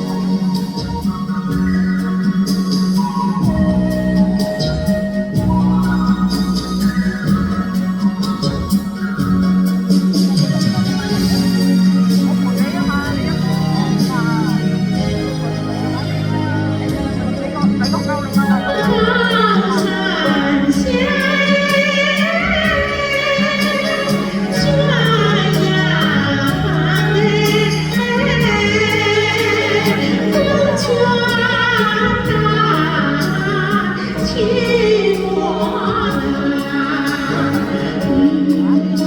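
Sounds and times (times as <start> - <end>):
instrumental accompaniment with bass: 0.0 - 39.0
woman singing with vibrato: 18.3 - 39.0.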